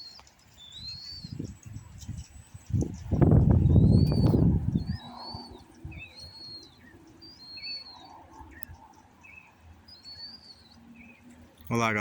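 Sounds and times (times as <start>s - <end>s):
bird whistling call: 0.0s - 1.4s, 3.6s - 8.6s
low bird chirps: 0.0s - 11.4s.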